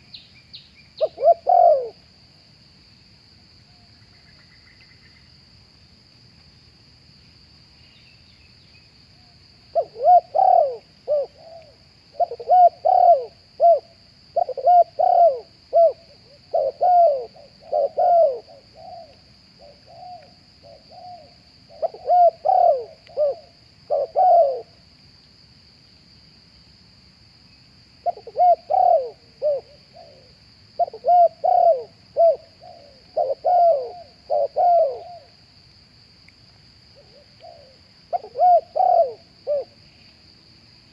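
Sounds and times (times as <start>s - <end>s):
high insect drone: 0.0s - 40.9s
dove cooing: 1.0s - 2.0s, 9.7s - 24.8s, 28.0s - 35.3s, 37.0s - 39.8s.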